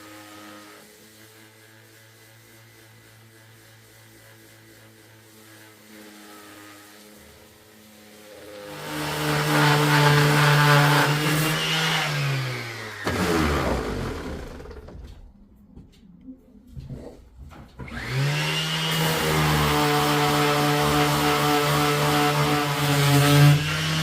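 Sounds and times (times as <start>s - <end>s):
power tool motor running: 5.4s - 15.2s, 17.9s - 24.0s.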